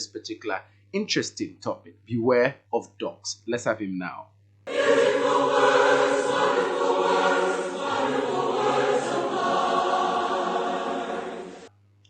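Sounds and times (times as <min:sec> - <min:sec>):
choir singing gospel: 0:04.7 - 0:11.7.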